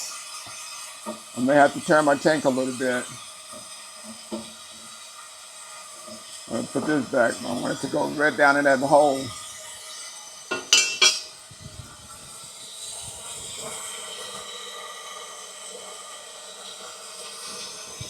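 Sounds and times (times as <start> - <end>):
water hissing into tank: 0.0 - 18.0
metallic pipe clinks: 10.5 - 11.3.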